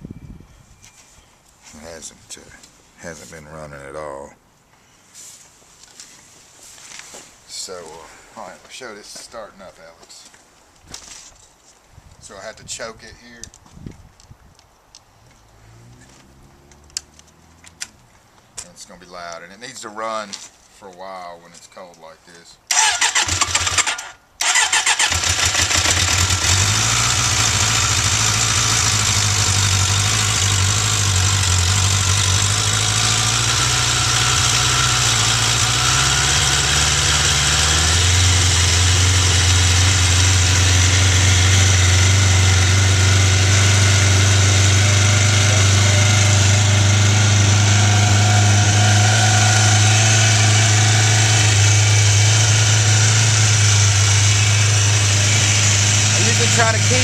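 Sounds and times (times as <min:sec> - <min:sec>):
motorcycle engine idling: 0:23.6 - 0:48.6, 0:49.8 - 0:57.0.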